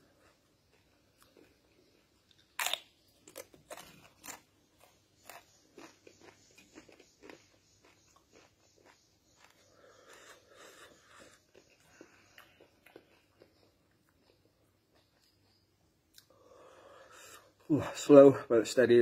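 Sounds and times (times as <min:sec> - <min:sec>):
corn chips crunching: 0:00.2 - 0:14.4.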